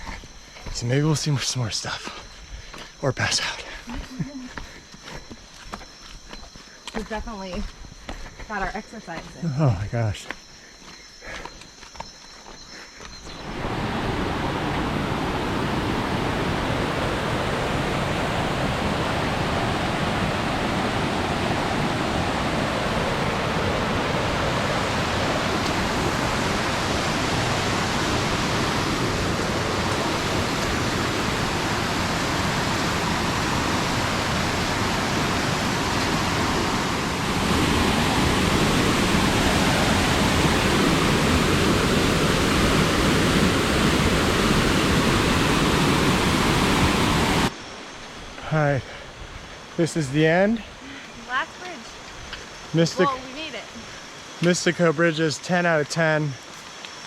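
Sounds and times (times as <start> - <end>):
waterfall rushing: 13.4 - 47.5.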